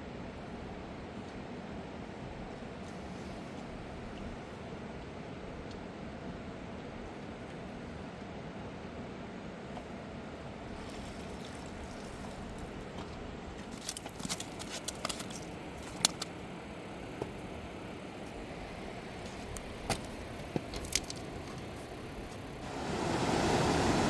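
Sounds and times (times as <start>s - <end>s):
small clicks and taps: 13.8s - 16.3s
fast-flowing river: 22.6s - 24.0s.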